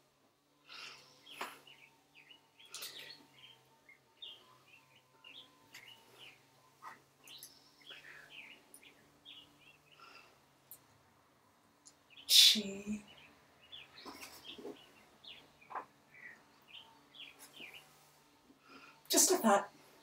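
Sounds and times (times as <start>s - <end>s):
birds chirping and whistling: 0.6s - 10.3s, 12.0s - 18.1s.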